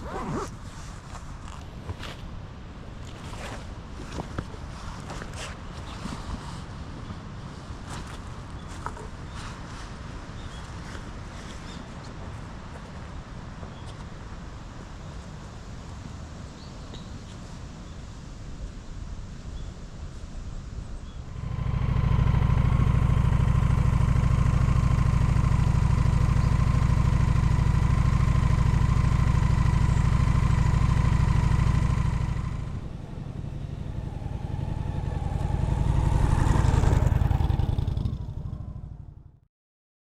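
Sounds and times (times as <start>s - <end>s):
motorcycle engine running: 21.3s - 39.4s.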